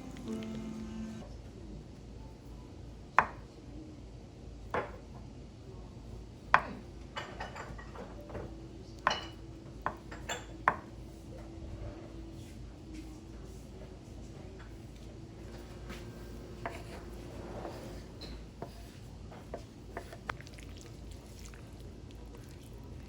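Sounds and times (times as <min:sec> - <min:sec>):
dishes and utensils clinking: 0:06.6 - 0:10.9.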